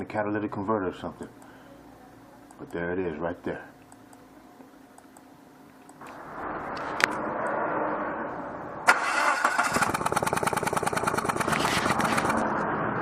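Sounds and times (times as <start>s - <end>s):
engine cranking: 8.9s - 12.5s.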